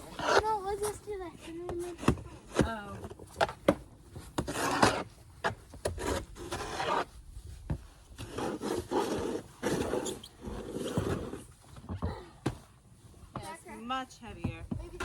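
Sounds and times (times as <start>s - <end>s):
snow shovel scraping snow: 4.4s - 7.2s, 8.1s - 11.6s.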